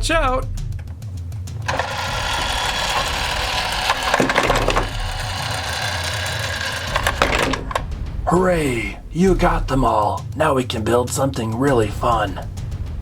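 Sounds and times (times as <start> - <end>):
toy blocks clattering: 1.6 - 7.9.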